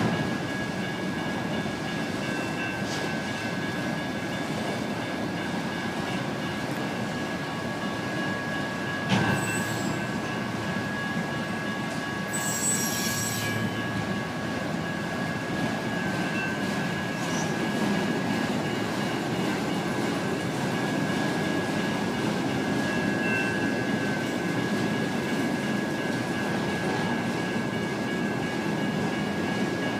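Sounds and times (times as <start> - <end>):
crossing electronic bells: 0.0 - 29.9
train cars rumbling on rails: 0.0 - 29.9
train clank: 0.0 - 29.9
wheel squeal: 9.2 - 10.1, 12.3 - 13.9.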